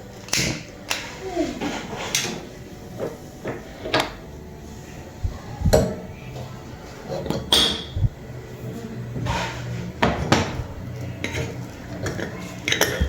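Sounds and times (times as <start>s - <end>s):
objects knocking and clattering: 0.1s - 4.3s, 9.2s - 13.0s.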